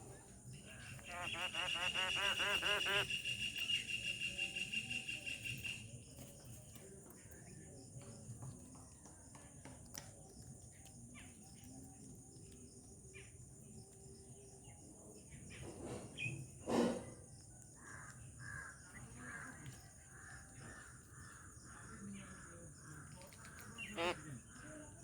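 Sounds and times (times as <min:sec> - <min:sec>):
harsh bird call: 0:01.0 - 0:03.9.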